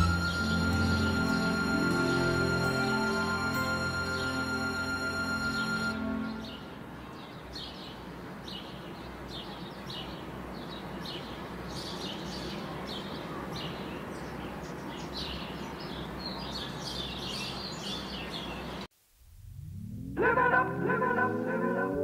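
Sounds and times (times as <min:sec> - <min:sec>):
small birds chirping: 0:06.3 - 0:18.9.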